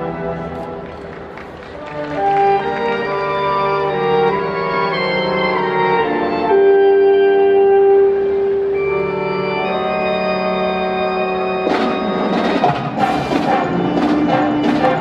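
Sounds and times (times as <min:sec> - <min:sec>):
crowd applause and cheering: 0:00.7 - 0:03.4, 0:11.6 - 0:15.0
wind band sustained chord: 0:02.3 - 0:15.0.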